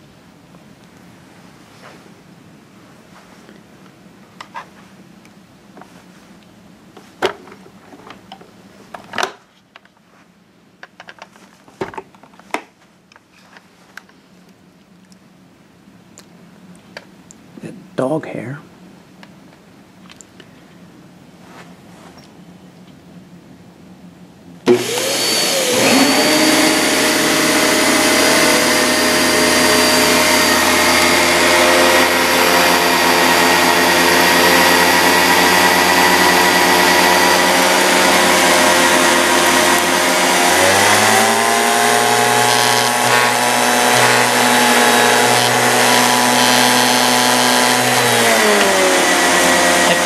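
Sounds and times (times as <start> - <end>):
vacuum cleaner running: 24.6 - 50.0.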